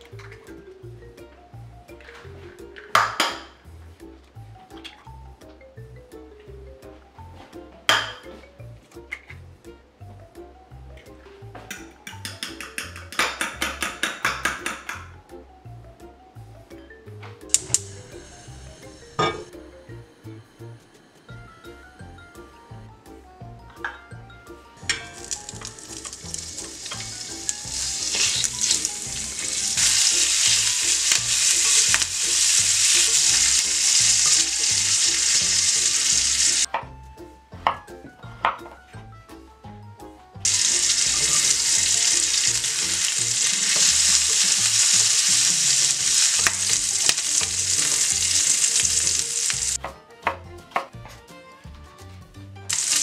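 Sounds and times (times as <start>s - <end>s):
food sizzling in a skillet: 17.5s - 19.3s, 24.8s - 36.7s, 40.4s - 49.8s, 52.7s - 53.0s.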